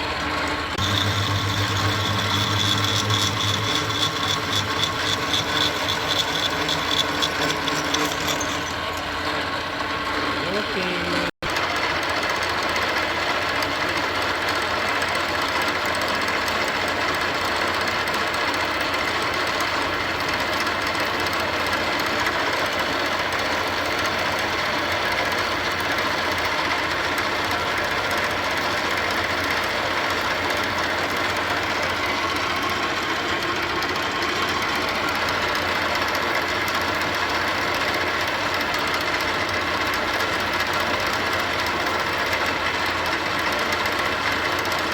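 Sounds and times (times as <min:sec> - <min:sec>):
machinery running: 0:00.0 - 0:11.3.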